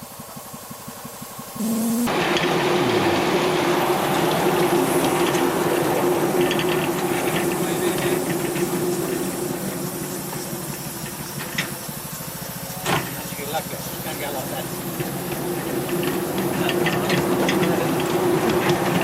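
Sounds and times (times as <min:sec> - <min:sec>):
loud hiss of steam: 0:00.0 - 0:19.0
low hum: 0:01.6 - 0:07.3.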